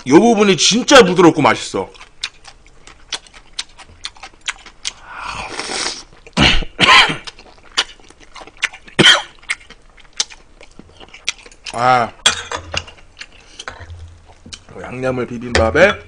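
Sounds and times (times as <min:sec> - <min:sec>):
wet chewing and lip-smacking: 0:01.9 - 0:06.4, 0:07.2 - 0:11.9, 0:12.8 - 0:14.7.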